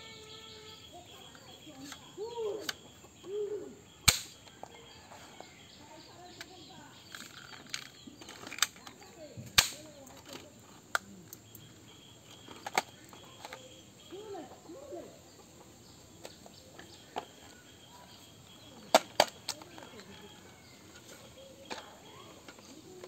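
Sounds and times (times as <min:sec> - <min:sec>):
toy gun firing: 0:04.0 - 0:04.4, 0:09.6 - 0:09.8.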